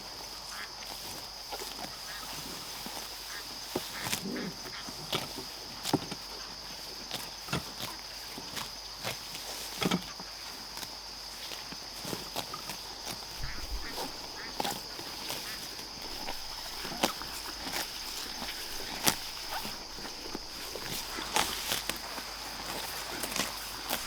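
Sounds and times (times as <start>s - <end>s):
grass crunching and rustling: 0.4s - 24.0s
low animal call: 13.4s - 21.8s.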